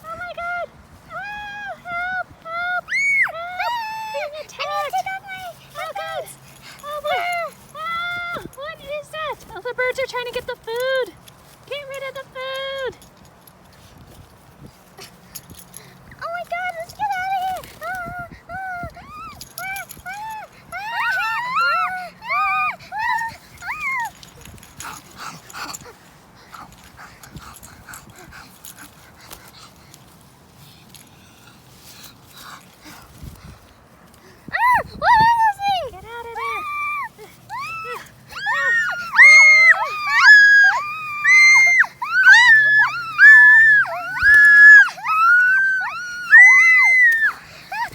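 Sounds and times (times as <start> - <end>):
high squealing call: 37.5 - 47.4.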